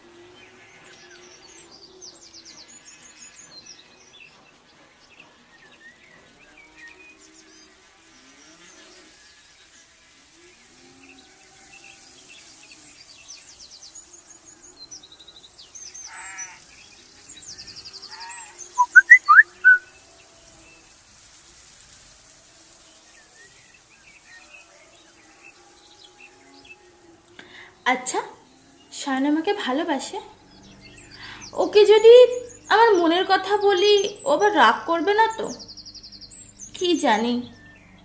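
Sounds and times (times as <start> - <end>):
birds chirping and trilling: 0.4 - 9.6, 10.5 - 20.6, 23.1 - 38.0
sharp whistled bird calls: 18.8 - 19.9.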